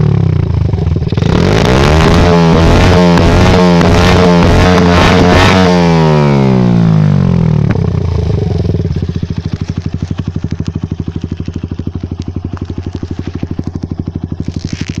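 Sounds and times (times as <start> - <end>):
motorcycle engine idling: 0.0 - 4.9, 5.7 - 15.0
exhaust pop: 7.6 - 15.0.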